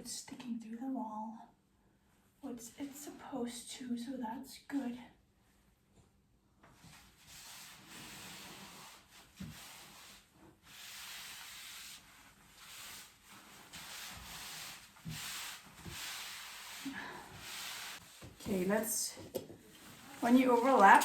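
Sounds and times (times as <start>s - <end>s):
dry scraping swish on wall: 6.8s - 18.6s.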